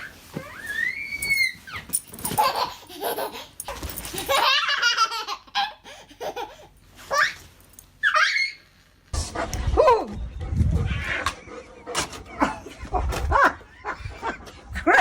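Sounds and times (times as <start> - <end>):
people laughing: 11.9 - 15.0.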